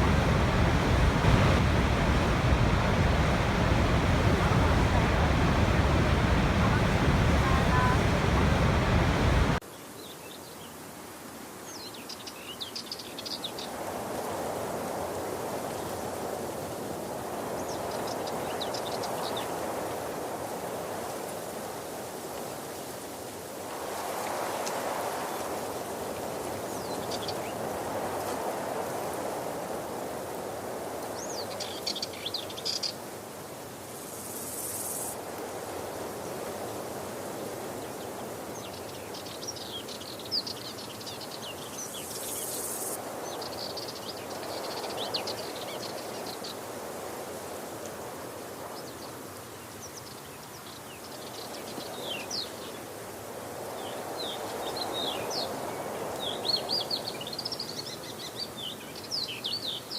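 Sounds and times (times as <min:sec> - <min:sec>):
waterfall rushing: 0:00.0 - 0:09.6
small birds chirping: 0:00.0 - 0:10.4.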